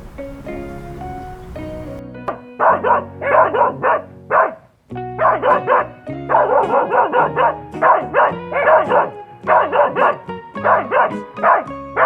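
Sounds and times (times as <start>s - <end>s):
background music: 0.0s - 12.0s
dog barking rapidly: 2.6s - 12.0s.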